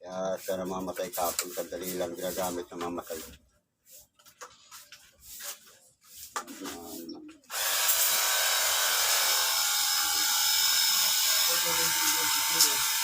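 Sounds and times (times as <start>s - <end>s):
pressure washer running: 7.5s - 13.0s.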